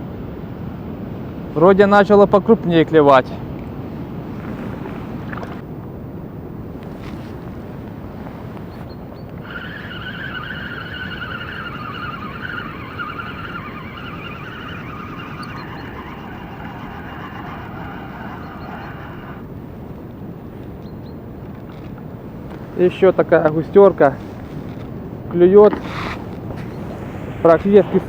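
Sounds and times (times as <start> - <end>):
wind on microphone: 0.0 - 28.0
fishing reel whirring: 6.8 - 19.4.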